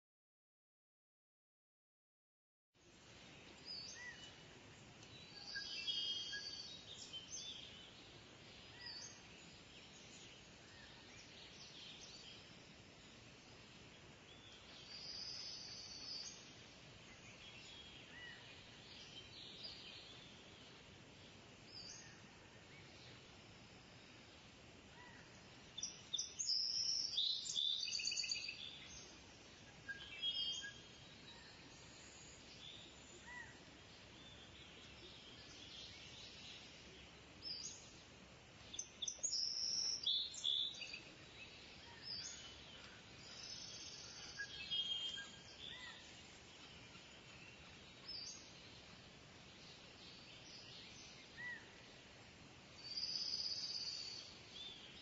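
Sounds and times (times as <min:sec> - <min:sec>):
steady outdoor hiss: 0:02.8 - 0:55.0
birds chirping and calling: 0:25.0 - 0:38.0, 0:38.6 - 0:49.0.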